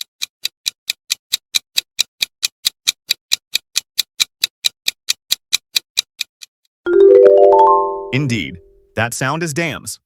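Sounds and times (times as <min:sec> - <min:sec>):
clock ticking: 0:00.0 - 0:06.5.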